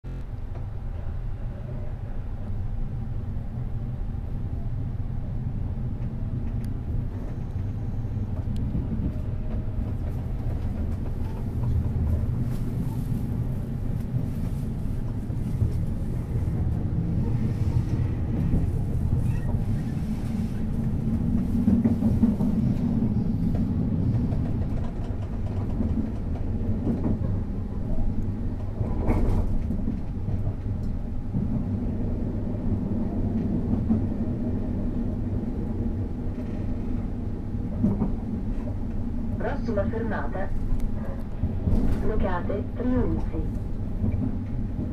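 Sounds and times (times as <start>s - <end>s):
train wheels rumbling on rails: 0.1s - 44.9s.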